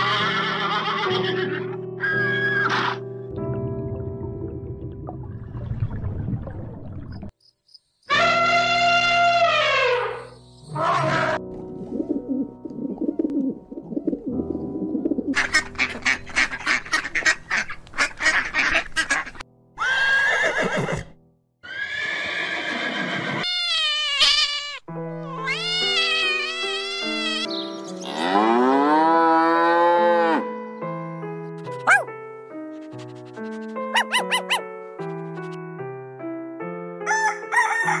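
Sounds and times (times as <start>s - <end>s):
horse whinnying: 0.0s - 3.0s, 19.8s - 24.8s
light background music: 0.0s - 5.3s, 8.2s - 19.4s, 24.9s - 38.0s
cow mooing: 28.0s - 30.4s.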